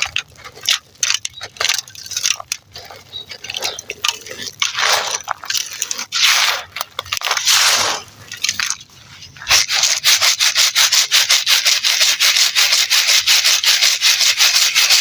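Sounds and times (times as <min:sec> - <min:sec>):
dry clay crumbled by hand: 0:00.0 - 0:09.9.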